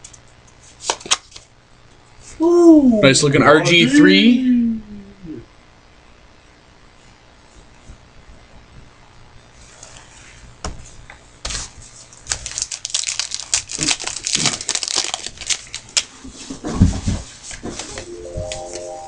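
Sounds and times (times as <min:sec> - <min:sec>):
card pack wrappers crinkling: 0:12.2 - 0:16.1.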